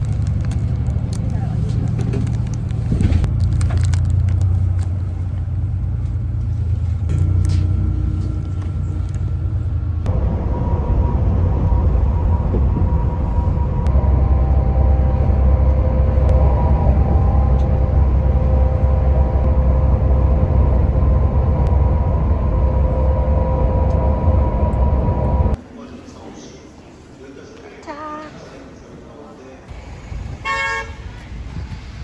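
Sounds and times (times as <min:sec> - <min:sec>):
constant hum: 0:00.0 - 0:25.6
vehicle rumbling from inside: 0:00.0 - 0:25.6.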